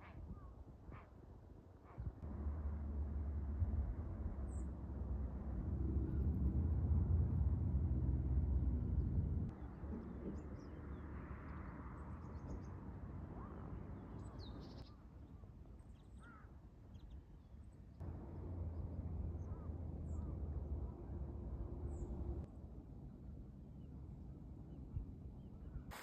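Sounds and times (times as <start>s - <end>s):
low outdoor rumble: 2.2s - 14.8s, 18.0s - 23.6s
birds chirping: 18.0s - 22.3s.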